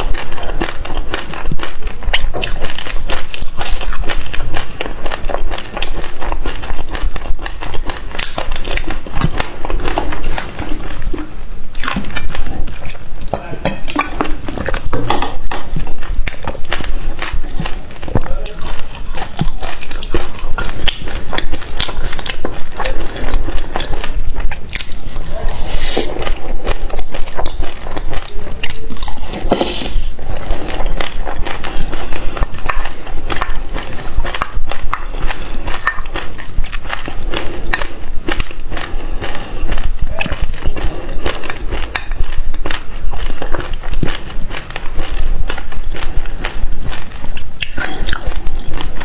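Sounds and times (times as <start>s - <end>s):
chewing crunchy seeds: 0.0s - 49.0s
slurping: 8.2s - 38.0s.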